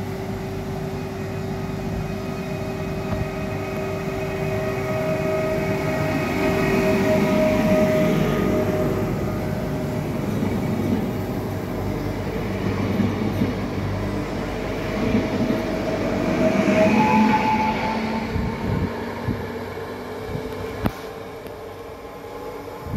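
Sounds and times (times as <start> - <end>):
electric traction whine: 0.0 - 22.9
train wheels rumbling on track: 0.0 - 22.9.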